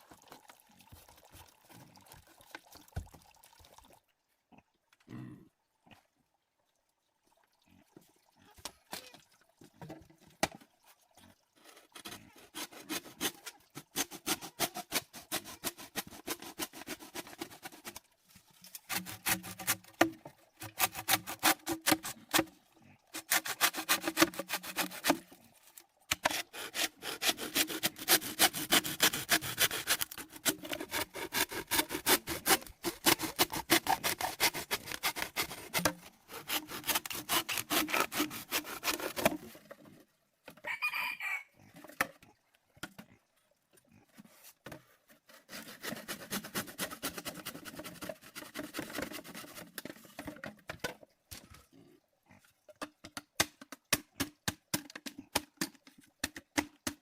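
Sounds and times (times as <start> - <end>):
wood rasping strokes: 11.7 - 18.0, 18.7 - 22.4, 23.1 - 25.3, 26.1 - 39.4, 45.2 - 50.0.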